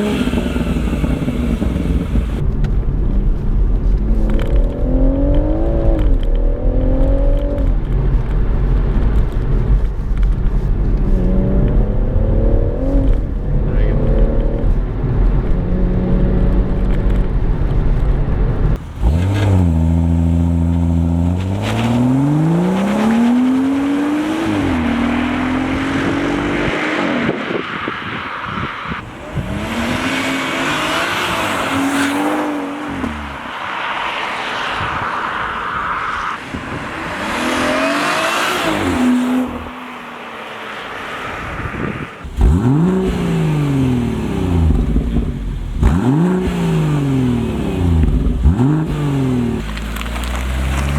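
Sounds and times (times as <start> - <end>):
car engine accelerating hard: 0.0 - 2.4, 18.8 - 33.5, 40.8 - 50.9
tyres hissing on wet road: 29.1 - 44.7.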